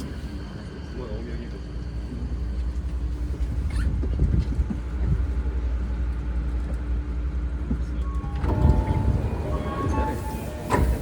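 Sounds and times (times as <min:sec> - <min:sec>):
electric train humming: 0:08.0 - 0:11.0.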